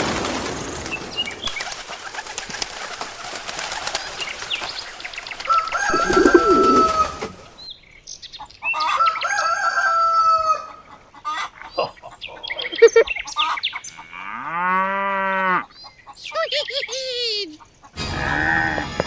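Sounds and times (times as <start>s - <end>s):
wings flapping: 0.0s - 7.6s
long bird calls: 0.8s - 9.6s, 10.3s - 14.6s
birds chirping: 0.8s - 18.0s.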